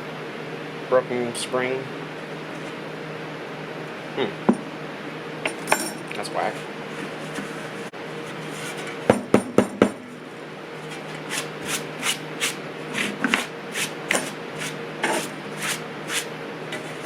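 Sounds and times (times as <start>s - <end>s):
short scraping strokes: 10.8s - 17.0s.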